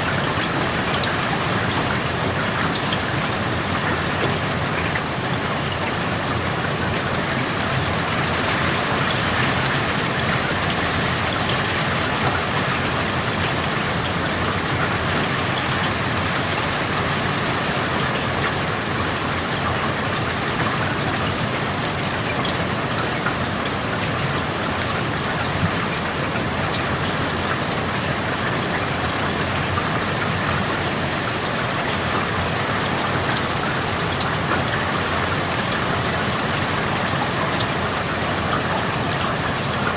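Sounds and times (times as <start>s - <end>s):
rain drop ticks: 18.4s - 30.6s.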